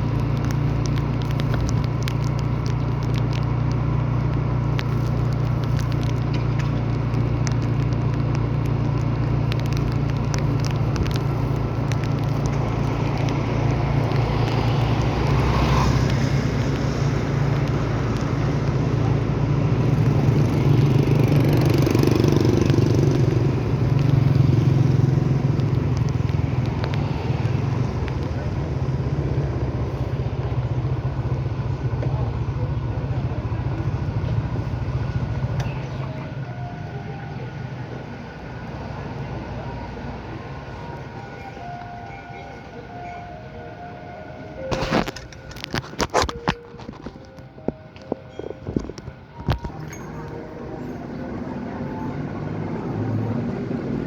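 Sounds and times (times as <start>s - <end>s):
scattered crackles: 0.0s - 36.4s, 38.7s - 50.4s
road noise: 0.0s - 54.0s
vehicle engine running: 0.0s - 54.0s.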